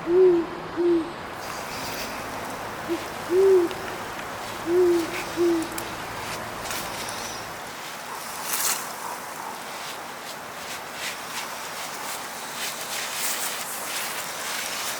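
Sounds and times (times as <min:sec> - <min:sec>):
owl hooting: 0:00.0 - 0:01.2, 0:02.8 - 0:05.9
background hiss: 0:00.0 - 0:14.9.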